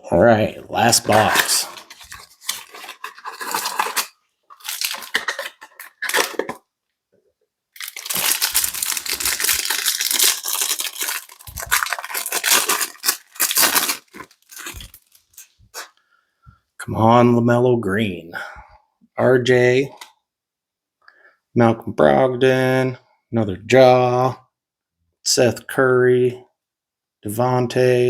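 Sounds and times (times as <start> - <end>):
cardboard packaging tearing: 0.8 - 6.6, 7.8 - 15.9.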